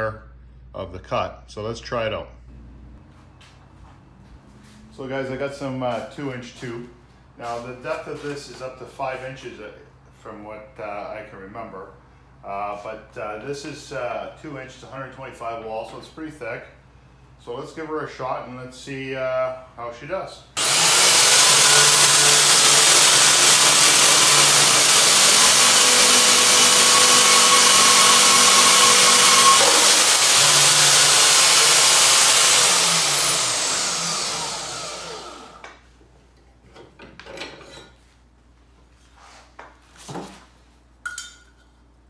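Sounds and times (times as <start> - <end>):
bandsaw cutting steel: 20.6 - 35.6
motor winding down: 20.6 - 35.6.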